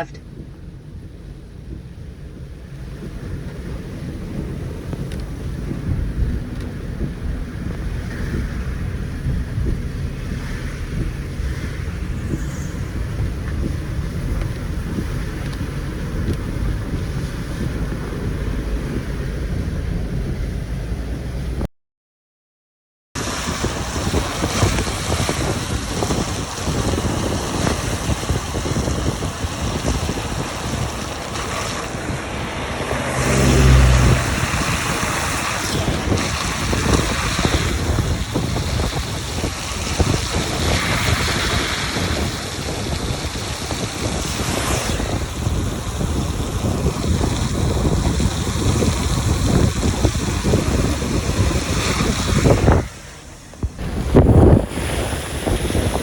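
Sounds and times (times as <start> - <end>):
car road and engine rumble: 0.0 - 21.7, 23.2 - 56.0
wind rush: 0.0 - 21.7, 23.2 - 56.0
heavy low bump: 53.5 - 55.7.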